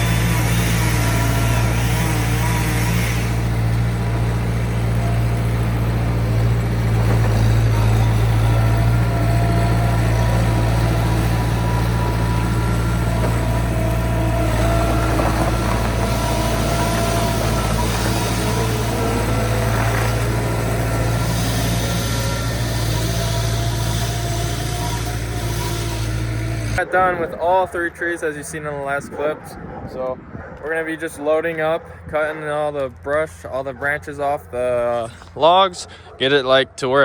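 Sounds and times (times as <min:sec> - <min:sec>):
vehicle engine running: 0:00.0 - 0:27.2.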